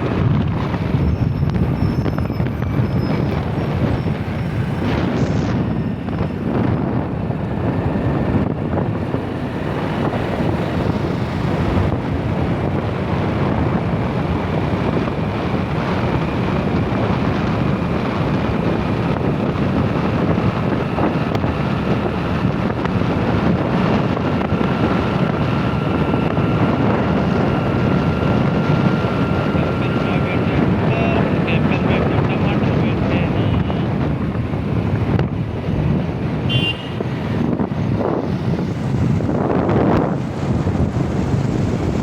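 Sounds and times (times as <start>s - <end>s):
wind noise on microphone: 0.0s - 42.0s
low rumble: 37.0s - 42.0s.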